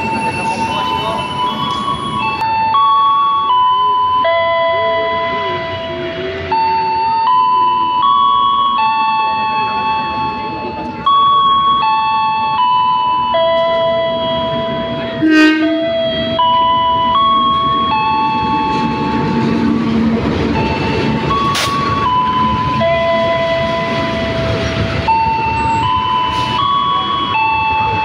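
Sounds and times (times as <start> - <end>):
slow chime melody: 0.0 - 15.2, 15.8 - 19.6, 20.5 - 28.0
passenger train rumbling past: 0.0 - 28.0
sharp horn blast: 15.2 - 16.0.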